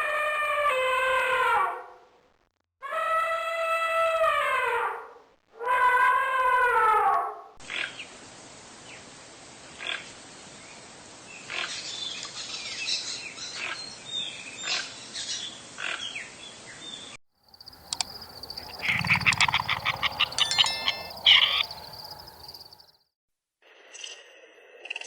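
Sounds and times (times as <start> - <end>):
steady background hiss: 7.9 - 13.4
animal calls: 17.7 - 22.8
steady high tone: 18.8 - 22.7.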